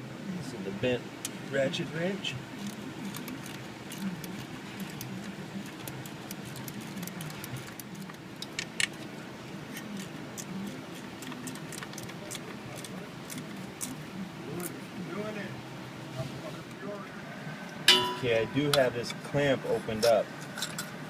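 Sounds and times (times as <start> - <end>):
low steady hum: 0.0 - 21.0
hand tools clinking on metal: 17.9 - 18.8.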